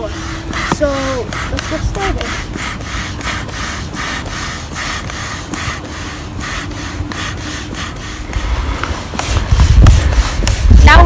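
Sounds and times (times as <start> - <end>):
air pump strokes: 0.0 - 11.0
low rumble: 7.9 - 11.0.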